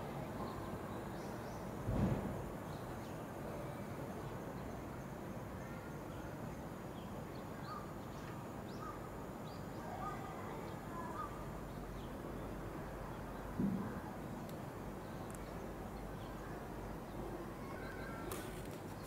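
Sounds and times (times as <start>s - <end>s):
bird calls and chirps: 17.1s - 19.0s.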